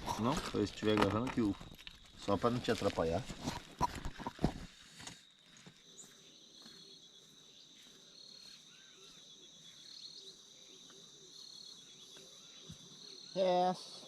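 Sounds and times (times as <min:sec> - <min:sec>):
insect chirring: 0:00.0 - 0:14.0.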